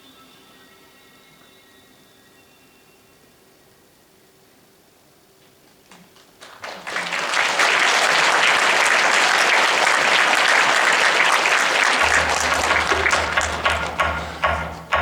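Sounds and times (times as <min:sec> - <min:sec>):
audience applause: 0:06.2 - 0:15.0.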